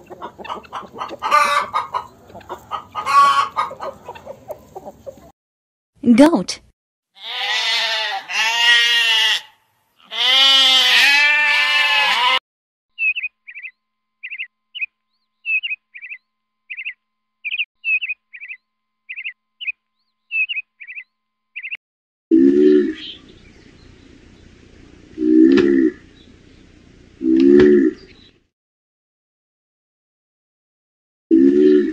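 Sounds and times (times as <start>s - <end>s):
goat bleating: 7.2s - 12.4s
bird chirping: 12.9s - 21.8s, 22.7s - 24.6s.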